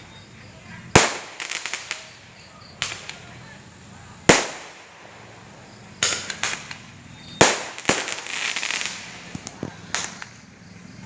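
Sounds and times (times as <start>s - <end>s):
firecrackers banging and crackling: 0.0s - 10.9s.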